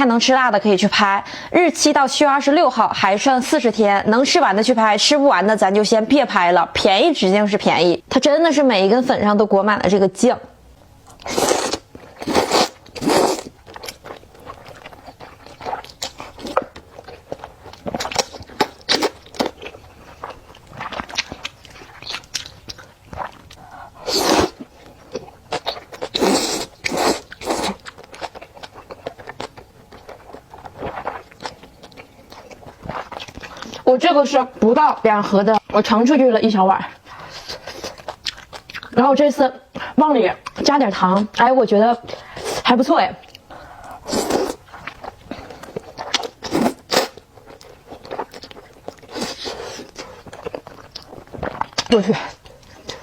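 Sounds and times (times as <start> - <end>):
close chewing and mouth clicks: 11.0 - 33.9, 36.9 - 39.0, 39.7 - 53.0.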